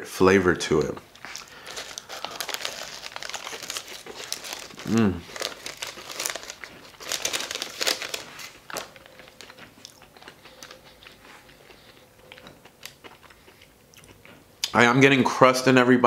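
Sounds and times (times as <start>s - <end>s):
chewing crispy pastry: 0.9s - 14.7s
paper crinkling: 1.1s - 11.5s.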